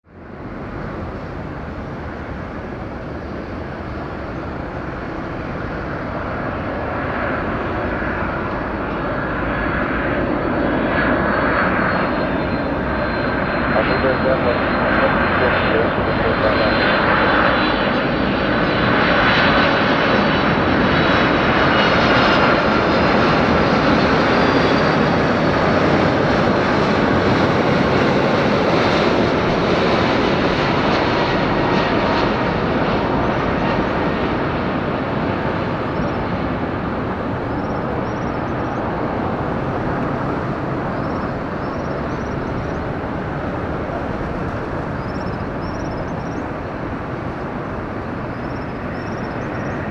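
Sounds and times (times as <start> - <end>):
jet engine noise: 0.0 - 49.9
faint high whining tones: 35.6 - 49.9.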